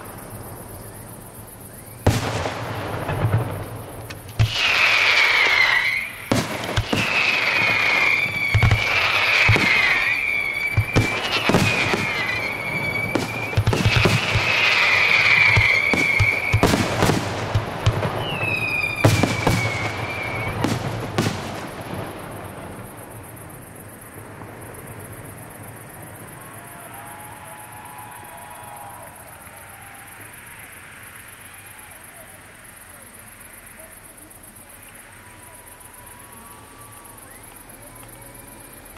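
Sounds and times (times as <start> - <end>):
fireworks bangs and crackles: 0.0 - 30.0
faint steady noise: 0.0 - 38.9
high falling whistles: 4.4 - 22.0, 35.1 - 38.9.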